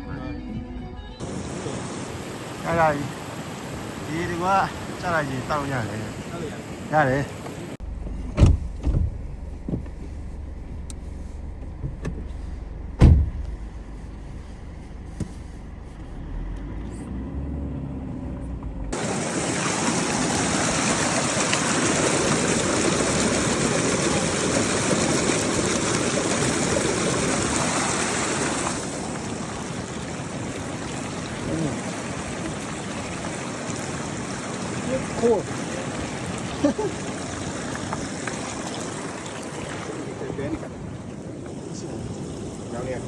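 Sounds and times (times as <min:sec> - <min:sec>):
stream water rushing: 0:01.2 - 0:12.4, 0:18.9 - 0:43.0
low steady rumble: 0:07.8 - 0:19.0
knocks: 0:13.0 - 0:13.6.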